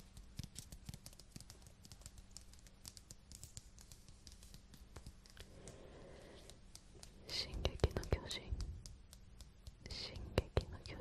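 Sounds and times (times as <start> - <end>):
light tapping on a book: 0.0 - 11.0.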